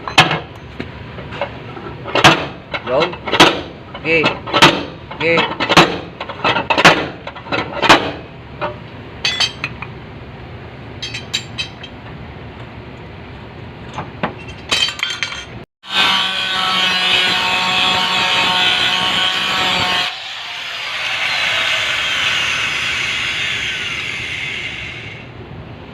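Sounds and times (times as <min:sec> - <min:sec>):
metallic knocks on sheet metal: 0:02.2 - 0:02.6, 0:04.5 - 0:05.0
power tool running on metal: 0:15.9 - 0:25.2.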